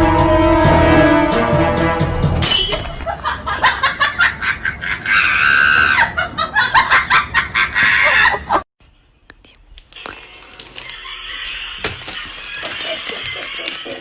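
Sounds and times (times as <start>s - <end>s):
music: 0.0s - 3.0s.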